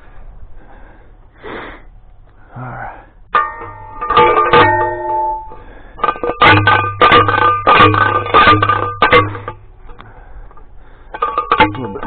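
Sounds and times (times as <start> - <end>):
post driver clanging on steel: 3.3 - 12.0.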